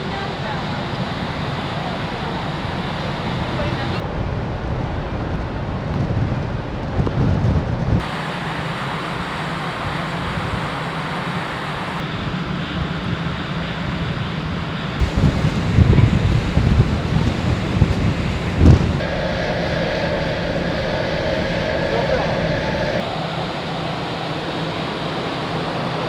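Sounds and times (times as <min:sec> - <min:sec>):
sea rushing: 0:00.0 - 0:05.2, 0:08.0 - 0:12.3, 0:14.8 - 0:26.0
ship noise: 0:00.0 - 0:26.0
wind buffeting microphone: 0:00.0 - 0:26.0.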